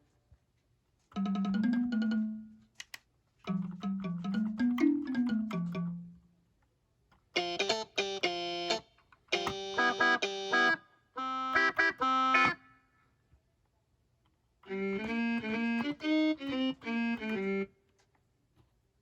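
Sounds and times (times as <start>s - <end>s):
guitar-like keyboard notes and chords: 9.4s - 12.6s.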